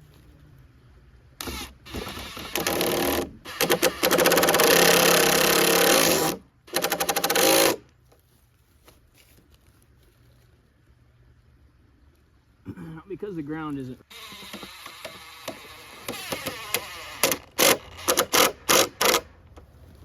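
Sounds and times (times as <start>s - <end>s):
impact driver driving screws: 1.4s - 7.8s, 14.1s - 19.3s.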